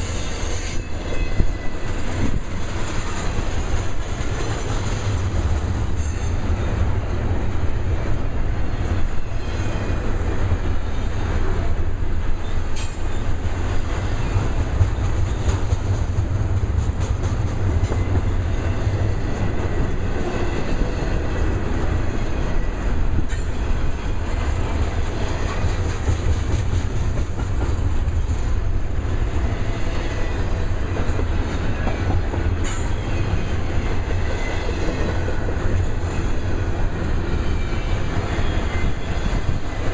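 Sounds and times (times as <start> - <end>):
freight train rumbling past: 0.0 - 39.9
wheels clicking over rail joints: 12.7 - 13.4.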